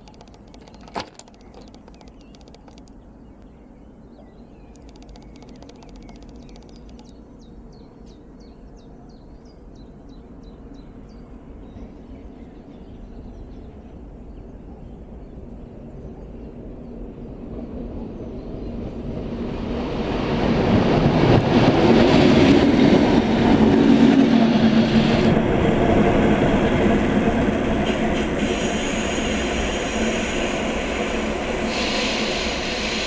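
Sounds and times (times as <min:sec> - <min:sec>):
sharp click: 0:00.0 - 0:03.0, 0:04.7 - 0:07.2
small birds chirping and trilling: 0:00.0 - 0:15.4.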